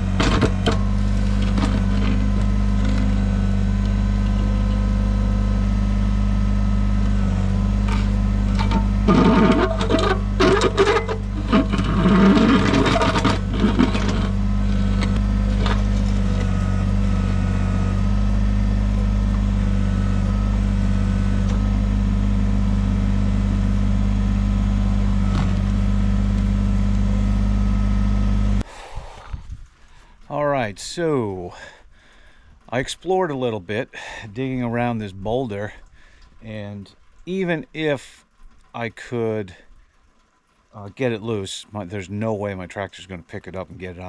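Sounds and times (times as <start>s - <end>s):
bucket clanking and scraping on rock: 0.0s - 3.3s, 7.8s - 17.1s
tractor diesel engine running: 0.0s - 28.7s.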